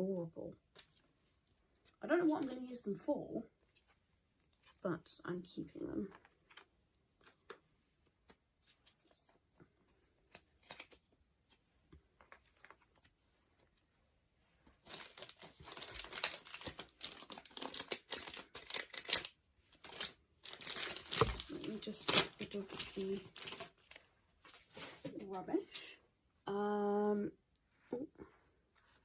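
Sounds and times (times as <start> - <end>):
packaging crinkling: 14.8 - 25.0
cards and plastic sleeves tapping: 19.9 - 23.7.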